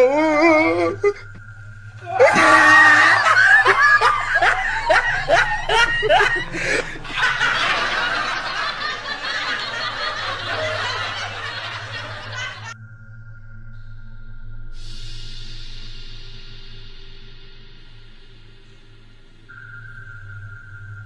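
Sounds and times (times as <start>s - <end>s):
people shrieking and laughing: 2.0s - 12.8s
faint steady high tone: 18.6s - 21.0s.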